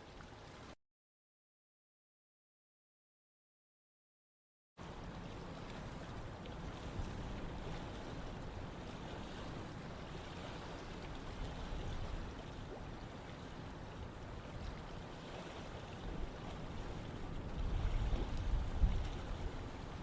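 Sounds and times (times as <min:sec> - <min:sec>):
running water: 0:00.0 - 0:00.8.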